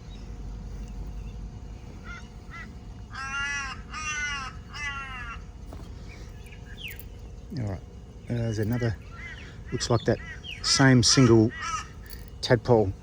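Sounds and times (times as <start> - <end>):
bird calling harsh caws: 2.0 - 7.4, 8.3 - 13.0.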